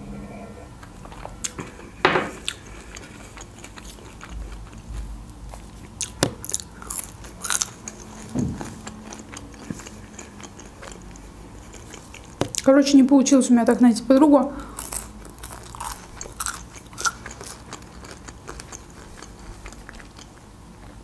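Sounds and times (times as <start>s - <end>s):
crunchy chewing of fries: 0.9s - 12.9s, 14.6s - 21.0s.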